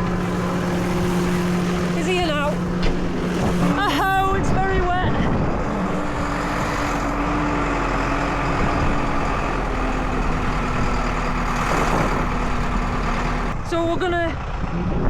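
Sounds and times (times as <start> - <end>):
wind noise on microphone: 0.0 - 13.7, 14.4 - 15.0
vehicle engine running: 0.0 - 15.0.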